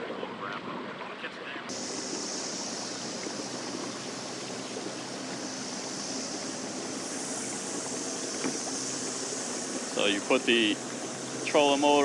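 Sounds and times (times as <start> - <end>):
water rushing along kayak hull: 0.0 - 12.0.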